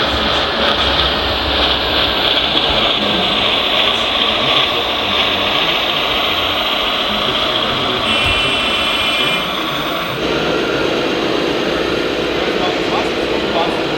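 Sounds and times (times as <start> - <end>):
model machines whirring and hissing: 0.0 - 13.9.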